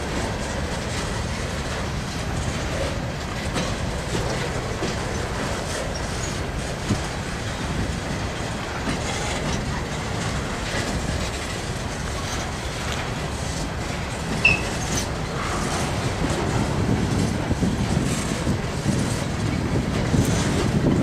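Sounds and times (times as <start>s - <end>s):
steel wheels rumbling on rails: 0.0s - 21.0s
high squeak: 14.4s - 14.9s.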